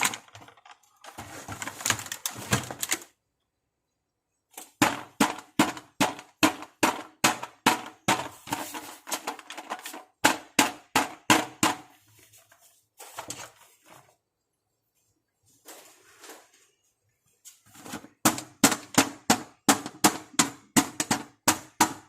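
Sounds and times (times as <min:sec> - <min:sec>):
scraping rustle: 0:01.0 - 0:03.0, 0:12.0 - 0:14.2, 0:15.0 - 0:18.1
plastic pieces tapping and clicking: 0:18.2 - 0:22.0.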